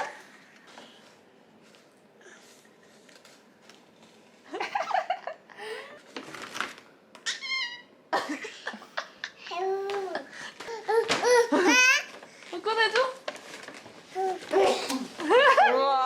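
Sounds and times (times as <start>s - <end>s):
toddler squealing: 7.2s - 7.9s.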